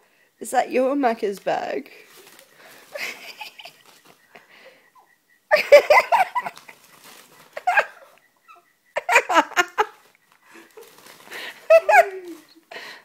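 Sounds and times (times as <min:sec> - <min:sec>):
people laughing: 0:02.9 - 0:04.7, 0:05.5 - 0:06.8, 0:07.5 - 0:08.2, 0:09.0 - 0:12.7.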